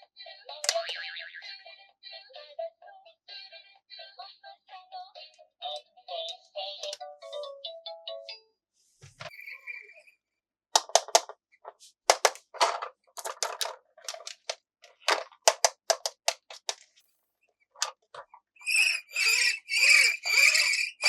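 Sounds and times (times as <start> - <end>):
squeaky wheezing bursts: 18.6 - 21.0.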